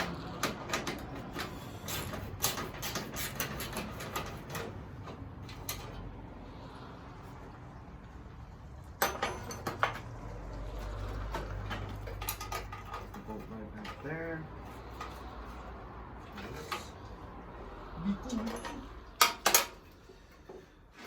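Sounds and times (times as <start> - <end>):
hand tools clicking on metal: 0.0 - 6.0, 9.0 - 17.1, 18.3 - 20.7.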